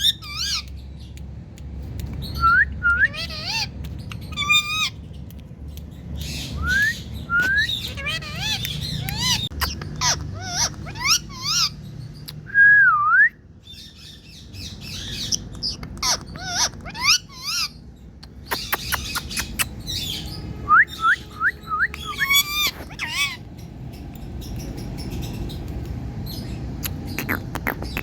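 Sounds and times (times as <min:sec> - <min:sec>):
parrot whistling and chirping: 0:00.0 - 0:00.8, 0:02.0 - 0:05.0, 0:06.1 - 0:17.8, 0:18.4 - 0:23.5.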